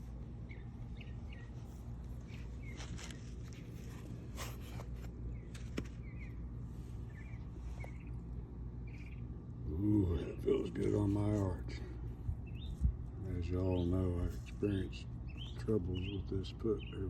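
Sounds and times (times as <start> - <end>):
steady low rumble: 0.0 - 17.0
small bird chirping: 0.4 - 4.1, 5.3 - 9.4, 12.4 - 12.9, 13.6 - 17.0.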